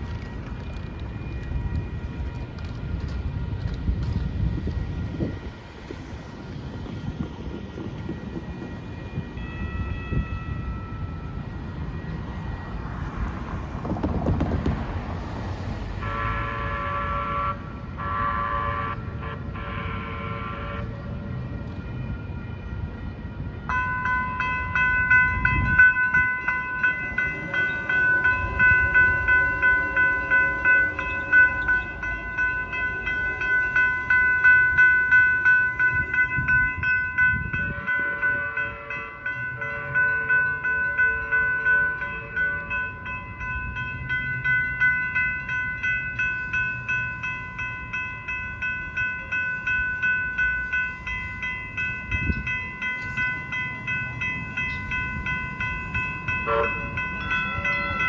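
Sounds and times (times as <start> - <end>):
electronic crossing bells ringing: 4.5 - 13.6, 22.8 - 58.0.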